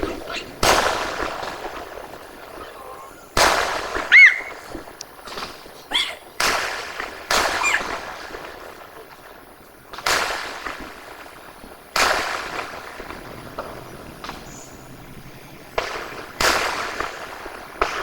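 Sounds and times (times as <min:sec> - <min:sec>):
firework whistle: 0:00.0 - 0:09.1
fireworks bangs: 0:00.0 - 0:18.0.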